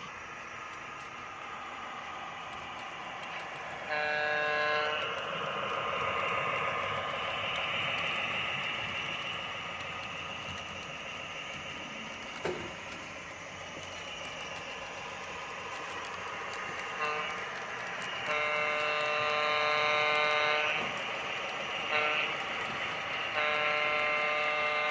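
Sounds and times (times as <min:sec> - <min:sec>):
model locomotive running whine: 0:00.0 - 0:24.9
model train horn blast: 0:03.9 - 0:05.2, 0:16.9 - 0:17.4, 0:18.2 - 0:21.0, 0:21.9 - 0:24.9.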